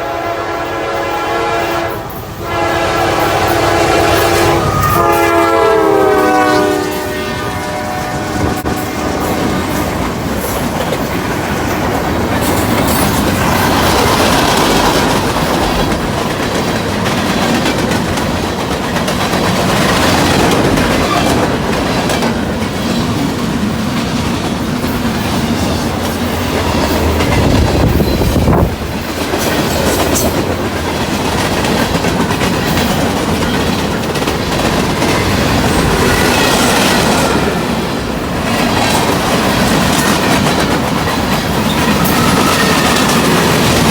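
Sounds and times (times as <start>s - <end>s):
freight train rolling past: 0.0s - 43.9s
train cars clattering over joints: 9.2s - 43.9s.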